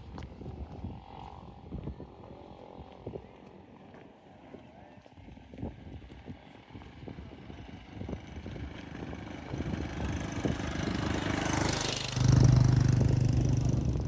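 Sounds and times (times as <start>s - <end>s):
motorbike engine: 7.3s - 14.0s.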